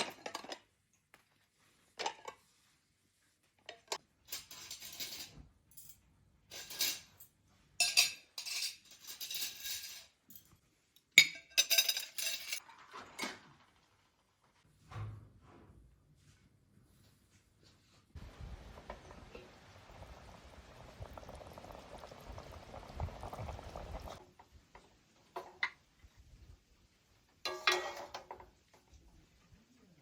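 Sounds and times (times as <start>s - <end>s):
dishes and utensils clattering: 3.7s - 10.6s, 11.2s - 13.6s, 27.5s - 28.9s.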